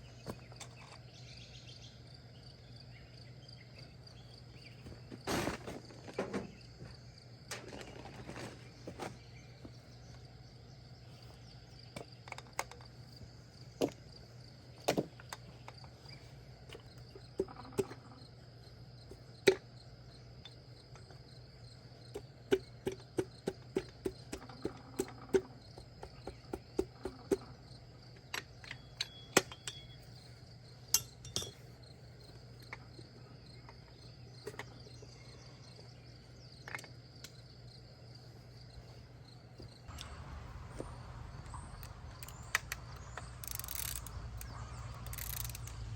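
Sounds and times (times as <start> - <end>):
crickets chirping: 0.0 - 45.9
metallic clinks of hand tools: 30.9 - 31.6.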